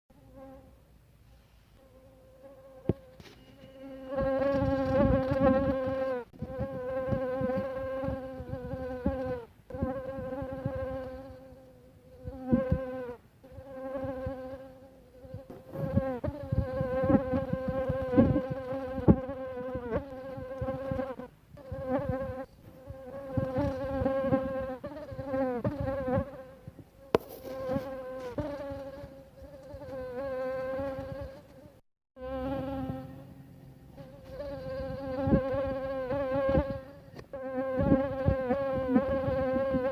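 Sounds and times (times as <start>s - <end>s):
mosquito buzzing: 1.8s - 39.9s.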